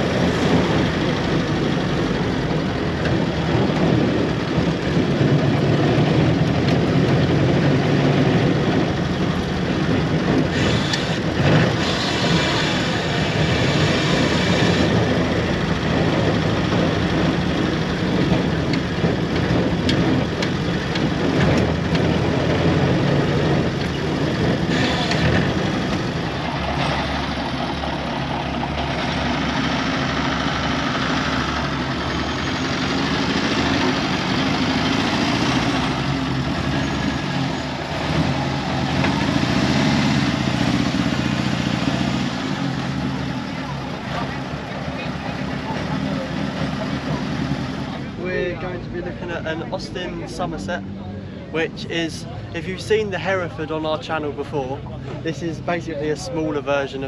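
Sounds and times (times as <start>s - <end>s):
small car engine running: 0.0s - 48.5s.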